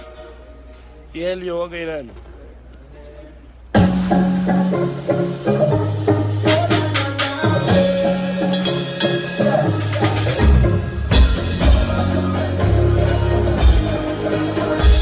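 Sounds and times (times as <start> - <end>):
drum kit: 3.7 - 15.0
bass guitar: 3.8 - 15.0.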